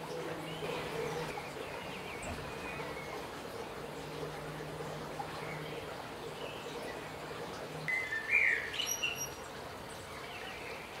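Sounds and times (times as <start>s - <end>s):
outdoor background noise: 0.0s - 11.0s
songbird chirping: 0.1s - 4.1s, 7.8s - 11.0s.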